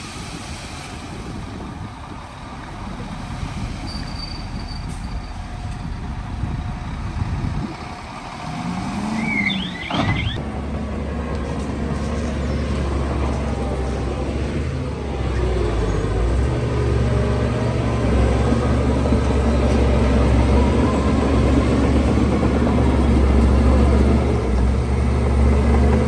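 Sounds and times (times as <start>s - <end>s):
diesel machinery engine rumble: 0.0s - 26.0s
high squeal: 3.8s - 6.0s, 8.6s - 10.4s.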